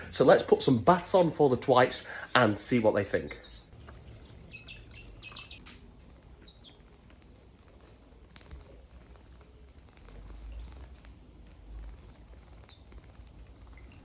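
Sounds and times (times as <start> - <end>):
small birds chirping: 1.9 - 14.0
faint ticks and pattering: 3.8 - 14.0.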